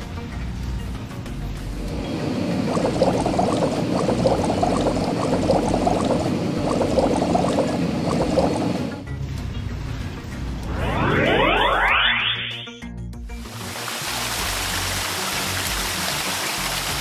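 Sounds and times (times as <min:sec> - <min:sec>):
water bubbling and gurgling: 0:01.9 - 0:09.9.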